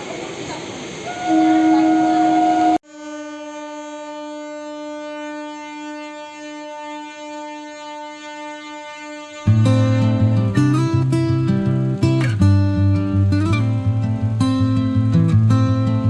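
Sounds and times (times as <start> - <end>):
train horn: 1.0 - 10.5.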